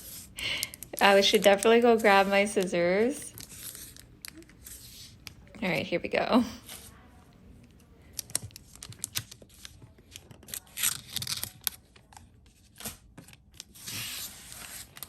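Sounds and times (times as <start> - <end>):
wrapping tearing and crinkling: 3.3 - 5.2, 8.1 - 15.0
scissors snipping packaging: 8.2 - 11.8.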